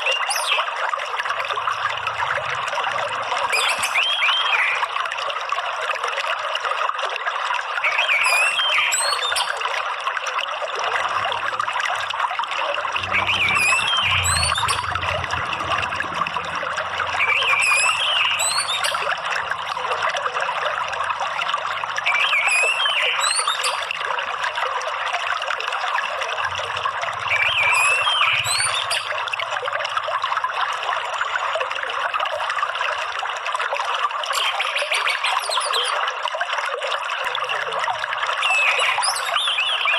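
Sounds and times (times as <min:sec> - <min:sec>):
stream water rushing: 0:00.0 - 0:39.9
thrush warbling song: 0:10.8 - 0:31.2.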